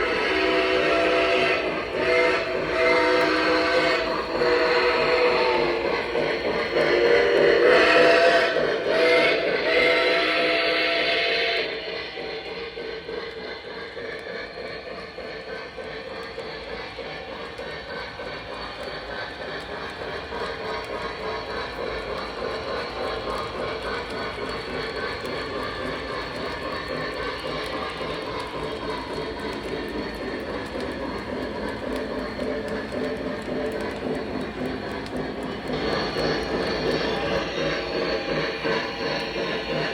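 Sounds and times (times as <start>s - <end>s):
model train rumbling on track: 0.0s - 39.9s.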